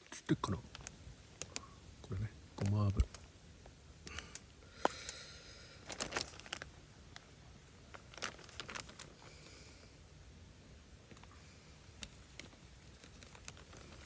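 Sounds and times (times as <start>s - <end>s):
packaging crinkling: 5.8s - 9.4s, 12.0s - 14.0s.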